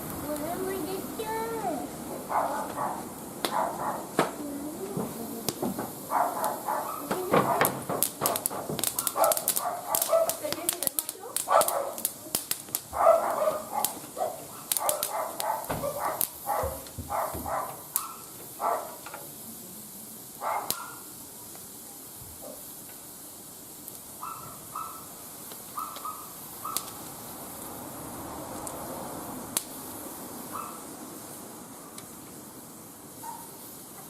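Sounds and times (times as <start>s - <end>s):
wood fire crackling and popping: 0.0s - 34.0s
dog yapping: 2.3s - 4.2s, 6.1s - 7.8s, 8.9s - 10.4s, 11.4s - 12.0s, 13.0s - 19.0s, 20.4s - 21.0s, 24.2s - 25.1s, 25.7s - 27.0s, 30.5s - 30.8s, 33.2s - 33.5s.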